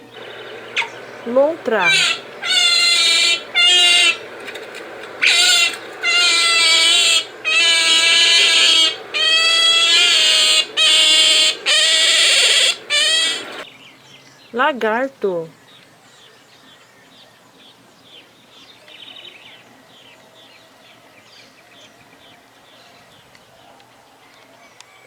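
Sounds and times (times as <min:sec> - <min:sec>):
otter squealing calls: 0:00.0 - 0:13.6.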